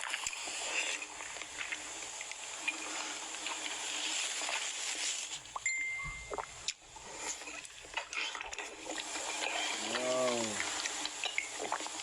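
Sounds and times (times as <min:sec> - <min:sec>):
wet chewing and smacking: 0:00.0 - 0:12.0
short steady beep: 0:05.6 - 0:06.6.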